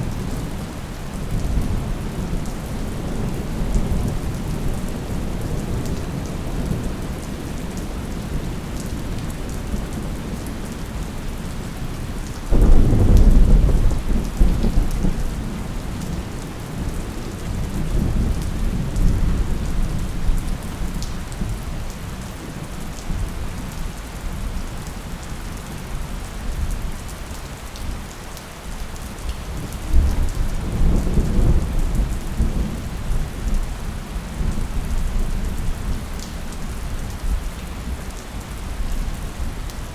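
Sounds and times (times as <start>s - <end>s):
steady rain: 0.0s - 39.9s
thunder rumbling: 12.5s - 21.5s.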